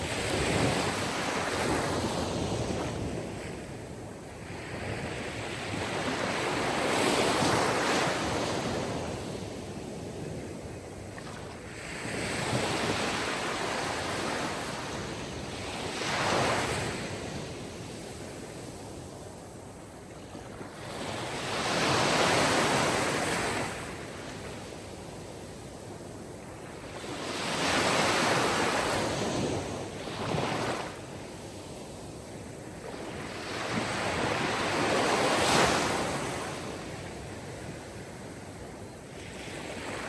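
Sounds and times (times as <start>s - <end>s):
sea waves breaking on shore: 26.5s - 40.0s.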